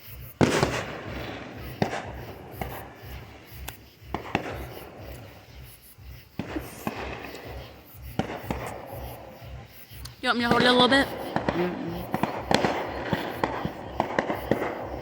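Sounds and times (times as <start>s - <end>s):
fireworks bang: 0.0s - 15.0s
fireworks pops and cracks: 0.0s - 15.0s.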